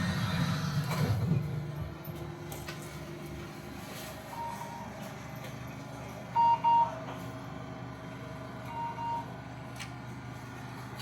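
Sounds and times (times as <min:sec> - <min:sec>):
tram equipment humming: 0:00.0 - 0:11.0
short electronic beeps: 0:04.3 - 0:04.9, 0:06.4 - 0:07.0, 0:08.7 - 0:09.3.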